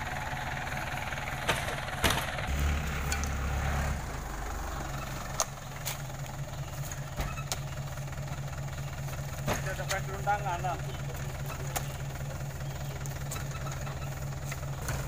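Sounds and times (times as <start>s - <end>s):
truck engine idling: 0.0s - 15.0s
fruit bunches knocking into cargo bed: 1.4s - 2.4s.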